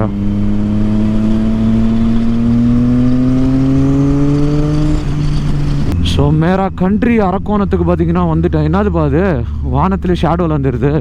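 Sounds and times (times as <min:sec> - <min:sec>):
motorcycle engine pulling: 0:00.0 - 0:06.6.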